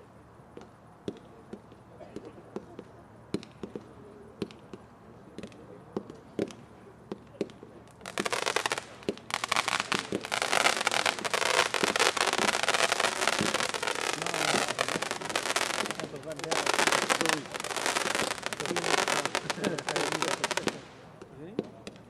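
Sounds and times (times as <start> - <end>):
firework crackling: 5.4 - 22.0
sharp pops: 5.4 - 22.0.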